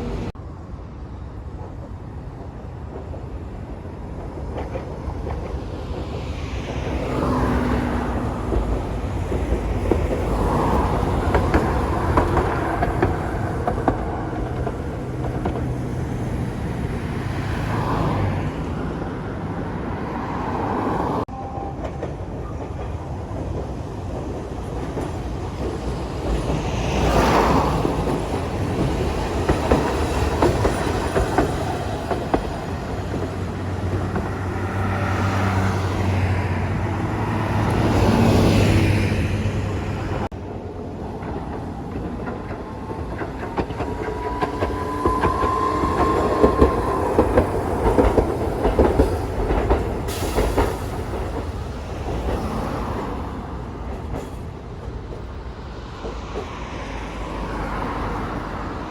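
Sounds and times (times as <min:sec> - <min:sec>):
train wheels clacking on rails: 0:04.0 - 0:17.4, 0:21.4 - 0:36.3, 0:40.2 - 0:58.7.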